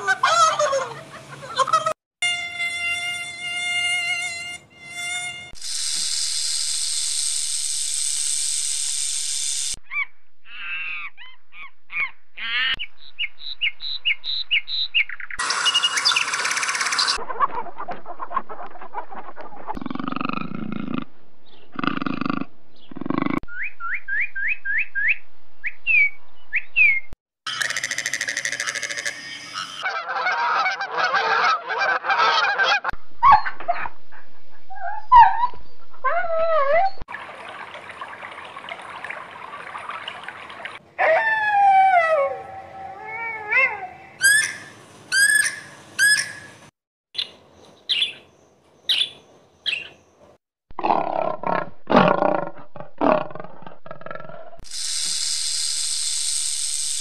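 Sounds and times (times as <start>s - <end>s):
animal squawks: 9.9s - 12.8s.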